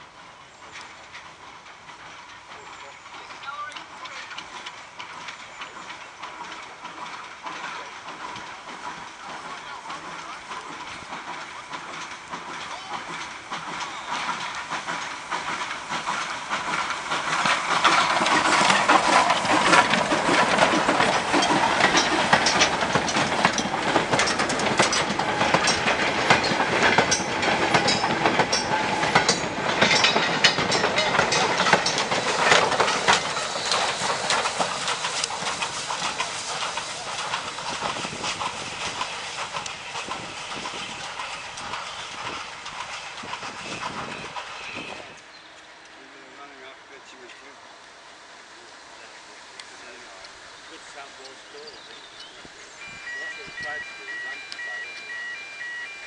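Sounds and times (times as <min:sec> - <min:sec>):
freight train rolling past: 0:00.0 - 0:56.0
wheels clanking over rail joints: 0:00.0 - 0:56.0.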